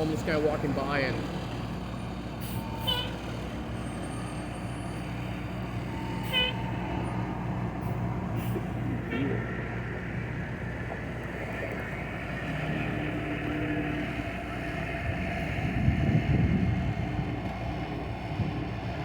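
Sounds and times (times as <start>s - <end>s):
engine running: 0.0s - 19.0s
wind buffeting microphone: 14.1s - 19.0s.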